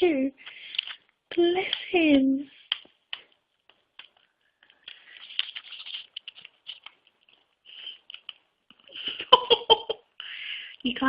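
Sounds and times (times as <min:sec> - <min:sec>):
paper crinkling: 0:02.5 - 0:08.5.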